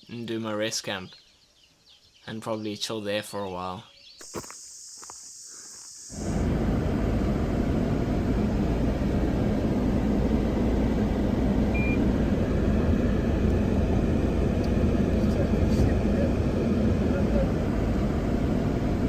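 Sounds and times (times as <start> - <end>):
vehicle road and engine rumble: 6.1 - 19.0.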